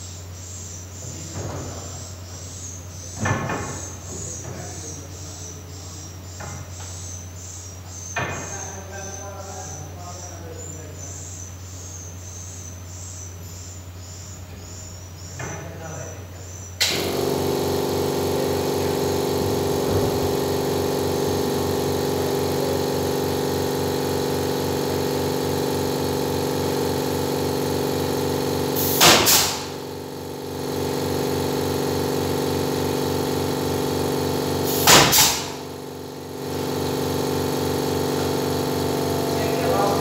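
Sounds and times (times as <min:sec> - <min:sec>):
engine running with low pulse: 0:16.3 - 0:40.0
loud burst of noise: 0:16.8 - 0:40.0.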